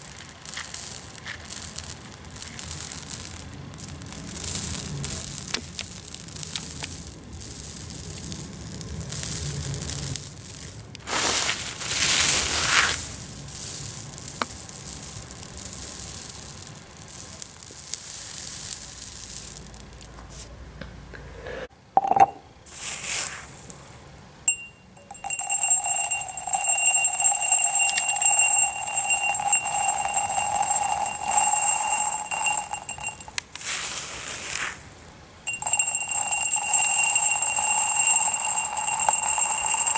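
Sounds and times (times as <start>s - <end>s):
aquarium gravel rustling and grinding: 11.0s - 19.8s, 33.6s - 35.0s
high ringing tone: 22.0s - 22.4s, 24.5s - 33.4s, 35.5s - 39.9s.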